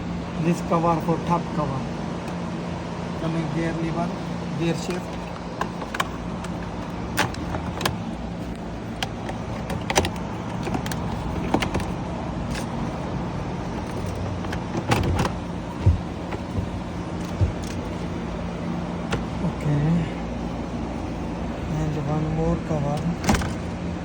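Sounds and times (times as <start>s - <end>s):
steady low hum: 0.0s - 24.0s
plastic trim clicking and knocking: 13.7s - 17.9s.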